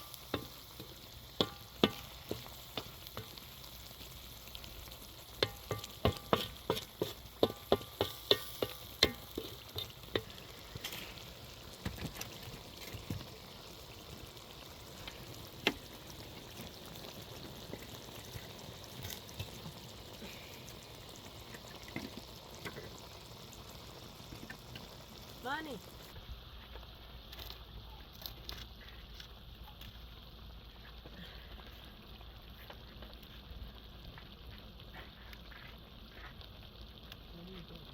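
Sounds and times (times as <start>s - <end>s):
food sizzling in a pan: 0.0s - 37.9s
utensil knocking against pan: 5.4s - 9.4s.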